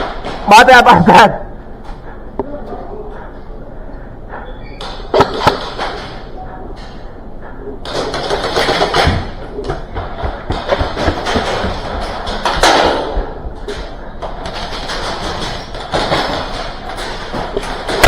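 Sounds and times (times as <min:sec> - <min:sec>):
rapid airsoft pops and clatter: 0:07.8 - 0:18.0.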